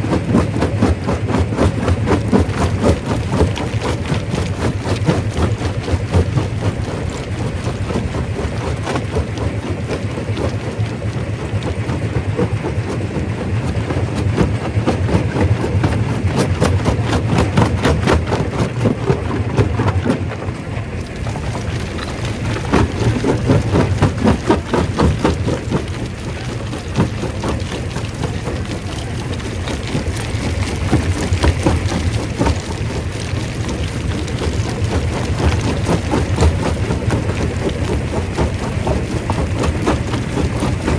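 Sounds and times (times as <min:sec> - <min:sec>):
rock crusher drone: 0:20.4 - 0:40.9.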